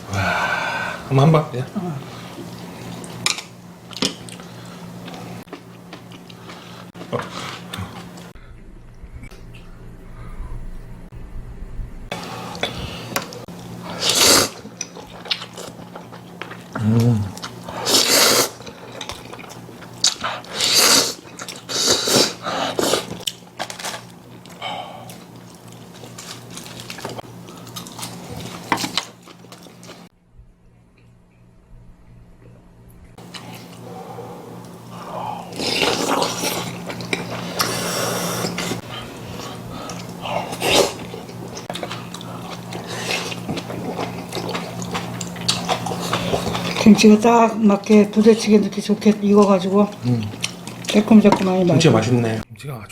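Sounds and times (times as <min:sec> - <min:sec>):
steady low hum: 0:00.0 - 0:52.9
person chewing: 0:02.3 - 0:10.4, 0:12.4 - 0:30.1, 0:34.6 - 0:47.0, 0:49.9 - 0:51.0
person slurping noodles: 0:12.3 - 0:14.6, 0:16.8 - 0:18.6, 0:20.2 - 0:23.2, 0:35.0 - 0:46.8.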